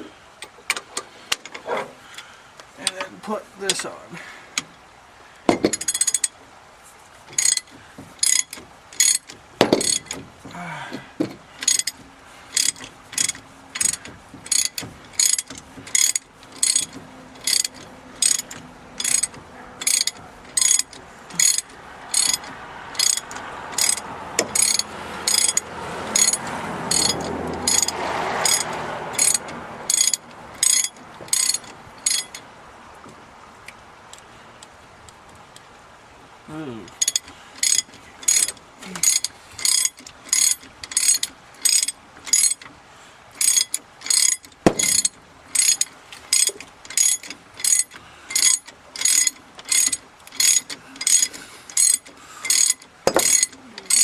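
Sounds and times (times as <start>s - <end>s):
dull background noise: 0.0s - 54.0s
ratchet wrench clicking: 7.4s - 10.2s, 11.6s - 32.4s, 36.9s - 42.7s, 43.4s - 54.0s.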